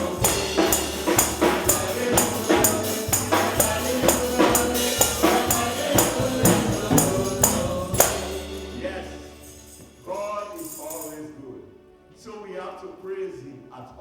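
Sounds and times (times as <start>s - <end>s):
bass line: 0.0s - 10.4s
person singing: 0.0s - 10.9s
tambourine struck on the beat: 0.0s - 11.2s.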